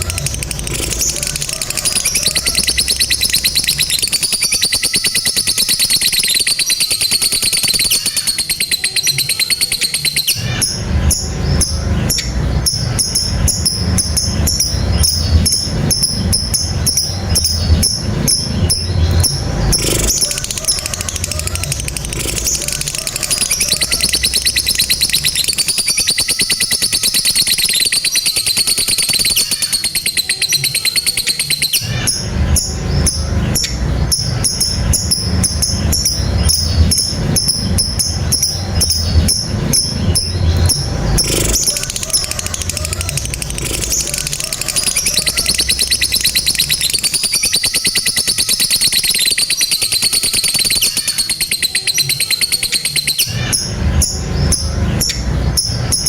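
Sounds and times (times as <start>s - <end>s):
lovebird chattering trill: 0.0s - 56.0s
low rumble: 31.8s - 47.1s.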